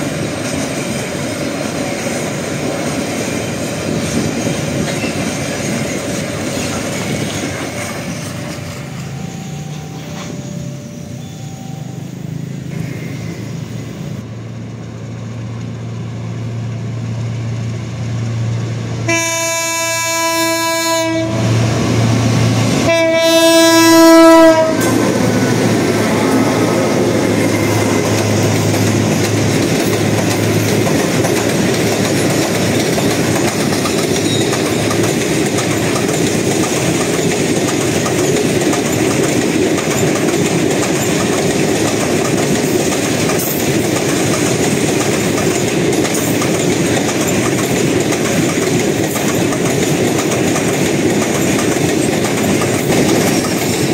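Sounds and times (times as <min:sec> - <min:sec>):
wheels clattering over rail joints: 0:00.0 - 0:10.6, 0:24.2 - 0:53.9
diesel locomotive engine: 0:00.0 - 0:53.9
train horn blasts: 0:19.0 - 0:21.9, 0:22.8 - 0:28.5.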